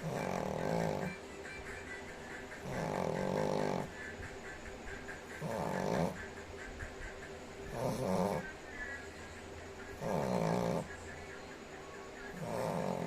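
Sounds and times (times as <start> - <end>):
dog snoring: 0.0 - 1.2, 2.3 - 4.3, 5.1 - 6.8, 7.6 - 8.9, 9.8 - 11.1, 12.2 - 13.0.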